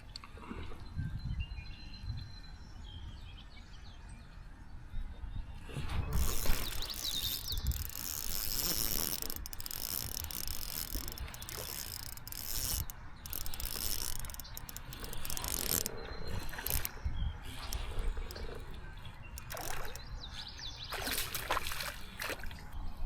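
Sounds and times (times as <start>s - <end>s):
fishing reel whirring: 6.1s - 18.7s, 19.4s - 20.0s.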